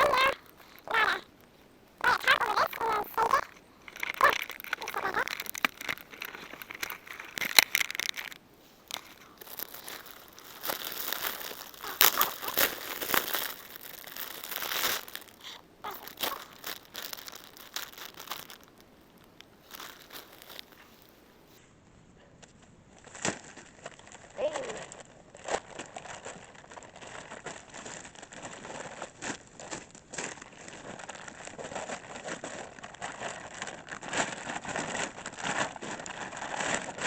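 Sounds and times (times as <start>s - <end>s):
crinkling and rustling handling: 0.0s - 21.6s, 22.4s - 37.0s.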